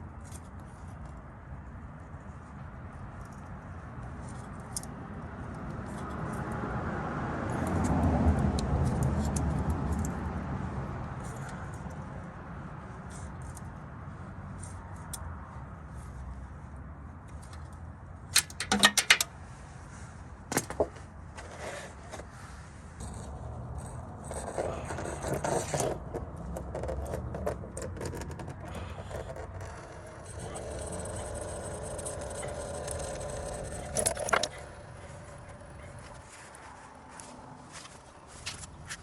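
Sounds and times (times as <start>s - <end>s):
metal tools clinking and scraping: 18.4s - 19.3s, 28.0s - 36.6s.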